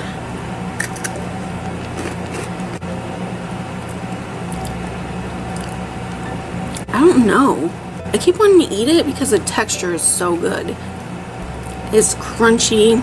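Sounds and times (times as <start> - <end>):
low hum: 0.0 - 13.0
chewing crunchy snack: 1.8 - 2.8, 5.5 - 5.8.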